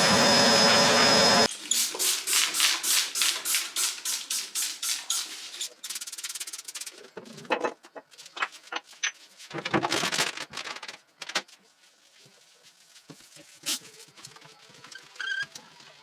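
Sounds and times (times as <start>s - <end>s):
loud steady machine noise: 0.0s - 1.5s
rhythmic rubbing strokes: 1.2s - 7.0s.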